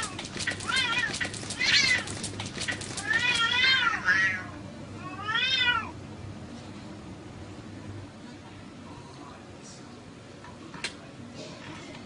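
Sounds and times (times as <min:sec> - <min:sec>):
cat meowing: 0:00.0 - 0:02.1, 0:03.0 - 0:06.0.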